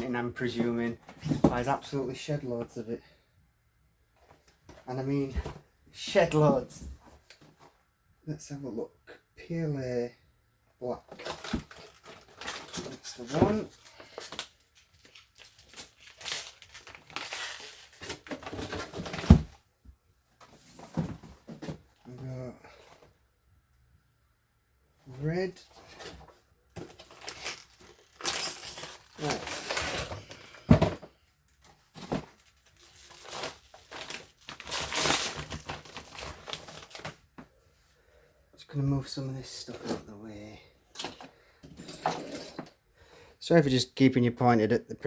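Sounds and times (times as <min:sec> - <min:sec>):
plastic packaging crinkling: 0:13.9 - 0:18.6, 0:27.0 - 0:30.3, 0:32.4 - 0:37.1.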